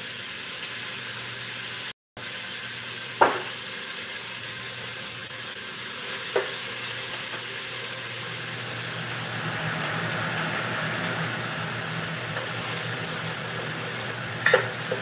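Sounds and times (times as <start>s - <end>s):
vegetables sizzling in a pot: 0.0s - 15.0s.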